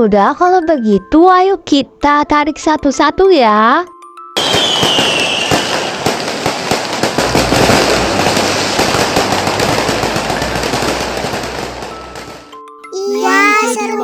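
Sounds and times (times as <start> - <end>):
short falling whistle: 4.4 - 5.8
firecrackers crackling pops: 4.4 - 12.5.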